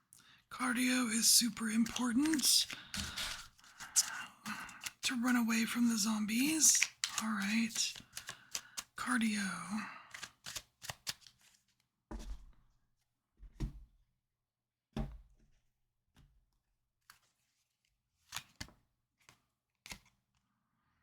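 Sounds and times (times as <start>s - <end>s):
cards being shuffled: 1.2s - 9.4s, 10.1s - 11.8s, 18.2s - 20.2s
short taps and soft thuds: 13.4s - 13.9s, 15.0s - 15.4s.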